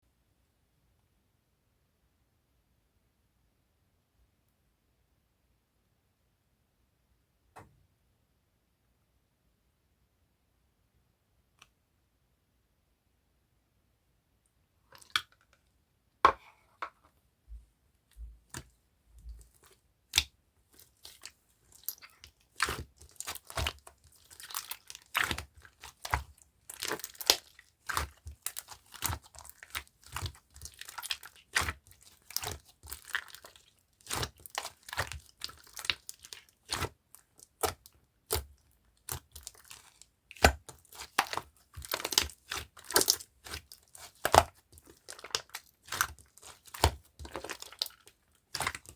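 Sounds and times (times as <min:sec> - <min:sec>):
slime popping and crackling: 0:19.6 - 0:48.9.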